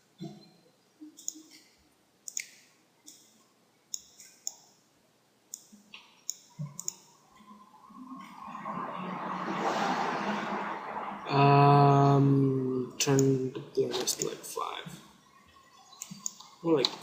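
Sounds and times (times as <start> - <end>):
computer mouse clicking: 1.2 - 1.7, 2.3 - 3.3, 3.9 - 4.7, 5.5 - 7.1, 14.0 - 14.4, 16.0 - 17.0.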